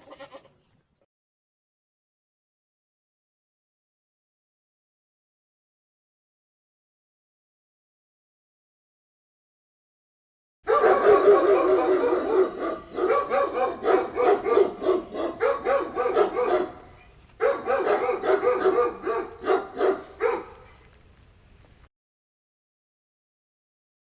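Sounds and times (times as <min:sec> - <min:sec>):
dog barking: 0:10.7 - 0:20.8.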